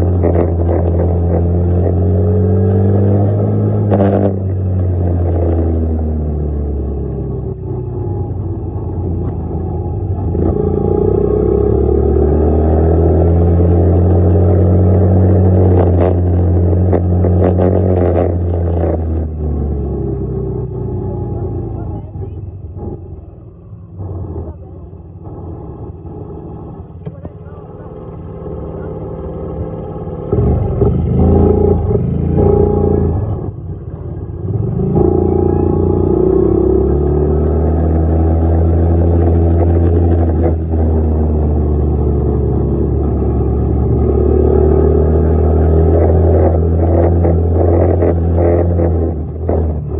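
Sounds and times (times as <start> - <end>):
dirt bike engine revving: 28.7 - 33.4.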